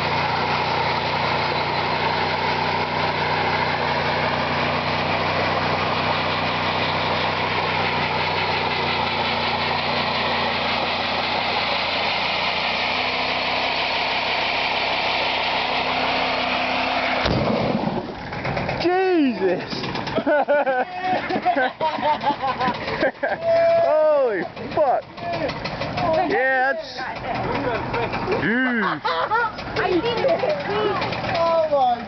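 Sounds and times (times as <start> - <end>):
engine knocking: 0.0 - 12.6, 17.6 - 32.0
car engine at high revs: 0.0 - 23.2
tyres spinning on pavement: 0.0 - 32.0.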